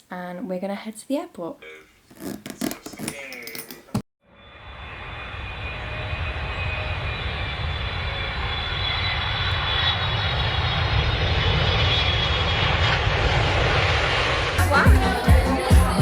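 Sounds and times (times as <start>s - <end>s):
jet engines rumbling and whining: 4.4s - 14.8s.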